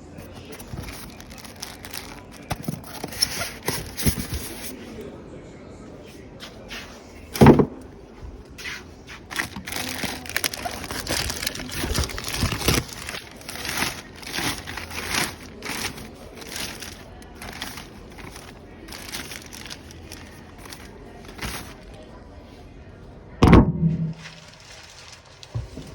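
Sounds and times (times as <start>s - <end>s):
plastic and cardboard rustling: 0.0s - 4.8s, 8.4s - 22.2s, 24.1s - 25.9s
thump: 7.4s - 7.8s, 23.4s - 24.2s.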